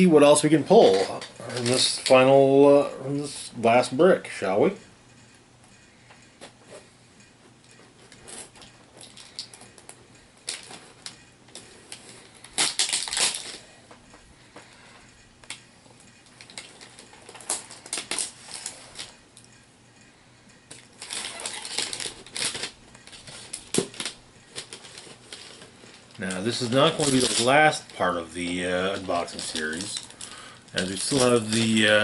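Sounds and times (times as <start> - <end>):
packaging crinkling and rustling: 0.7 - 2.3, 8.0 - 13.8, 16.2 - 19.2, 20.7 - 32.0.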